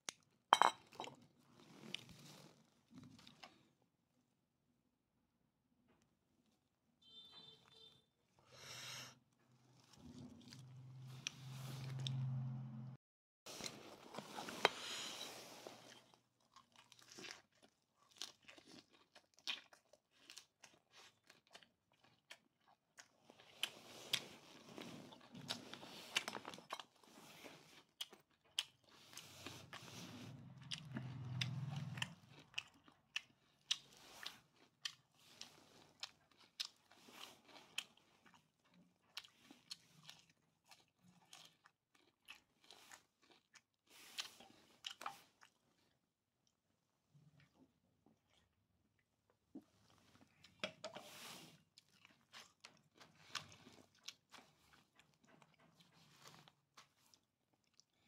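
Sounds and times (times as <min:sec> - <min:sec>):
man chewing with mouth clicks: 0:15.9 - 0:46.6, 0:49.3 - 0:58.0.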